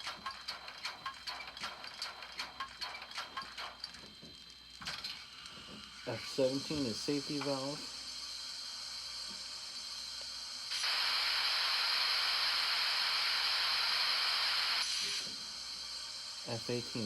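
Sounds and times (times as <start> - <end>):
steam hissing from safety valve: 5.0 - 17.0.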